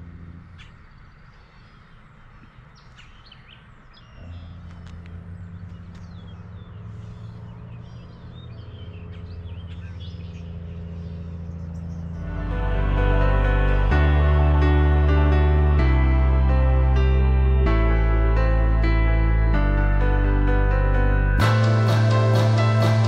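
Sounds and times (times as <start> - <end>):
low steady hum: 0.0 - 2.8, 3.7 - 23.0
birds chirping: 0.0 - 12.6.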